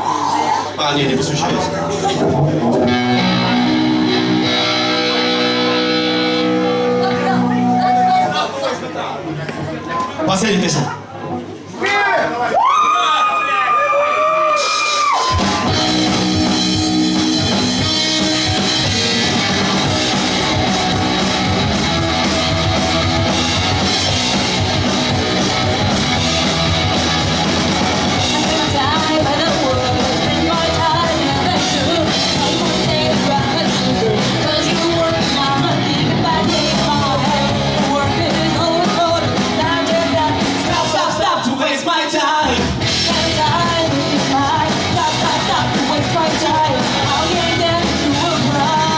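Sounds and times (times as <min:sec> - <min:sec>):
pop-punk band playing: 0:00.9 - 0:08.8, 0:14.5 - 0:48.9
sung vocals: 0:28.0 - 0:48.9.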